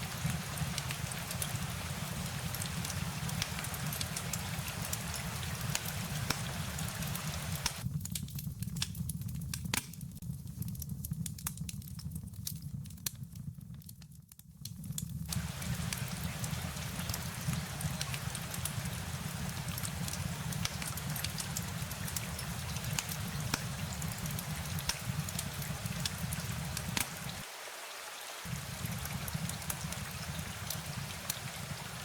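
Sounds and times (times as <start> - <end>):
rain hiss: 0.0 - 7.8, 15.3 - 32.0
fire crackling pops: 0.0 - 27.6, 28.4 - 32.0.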